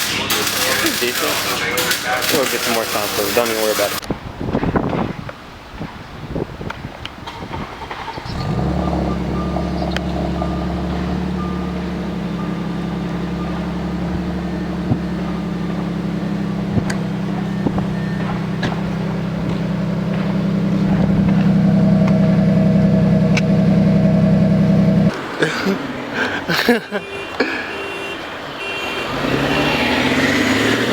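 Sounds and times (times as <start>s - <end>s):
car engine running: 7.9s - 25.1s.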